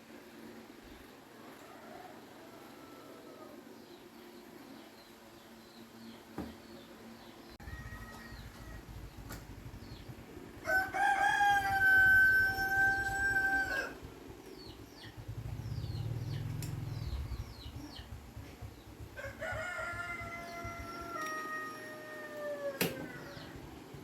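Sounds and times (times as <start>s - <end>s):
rooster crowing: 1.5s - 3.7s, 7.6s - 9.1s, 10.6s - 14.1s, 19.1s - 23.7s
small birds chirping: 2.2s - 21.4s.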